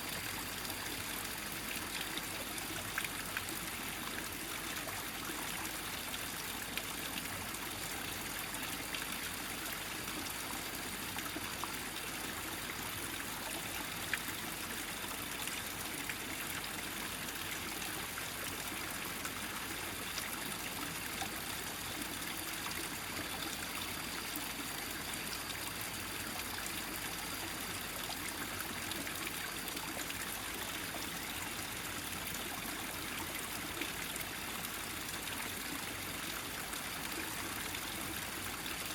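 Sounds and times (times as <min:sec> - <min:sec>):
stream running over rocks: 0:00.0 - 0:38.9.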